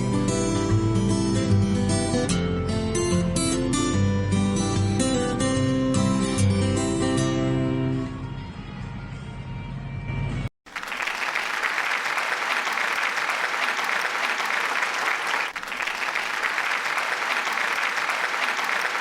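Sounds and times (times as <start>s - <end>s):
crowd applauding: 10.7s - 19.0s.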